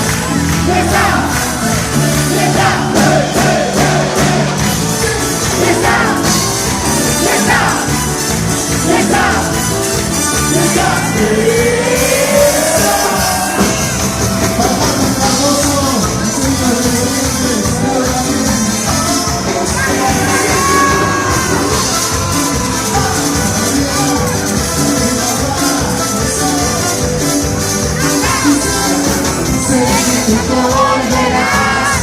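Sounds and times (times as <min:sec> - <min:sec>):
live band playing dance music: 0:00.0 - 0:32.0
crowd shouting: 0:00.4 - 0:14.3, 0:19.5 - 0:24.3, 0:28.0 - 0:32.0
man singing: 0:00.4 - 0:32.0.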